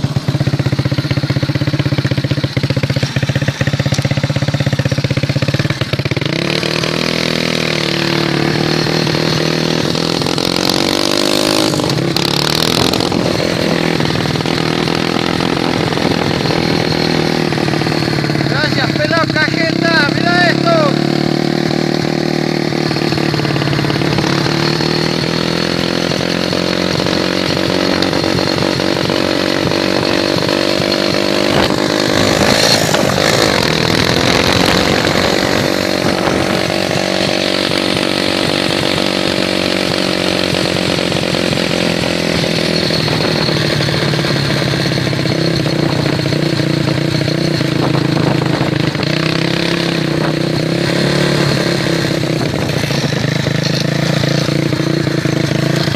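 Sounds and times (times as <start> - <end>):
small engine running steadily: 0.0 - 55.9.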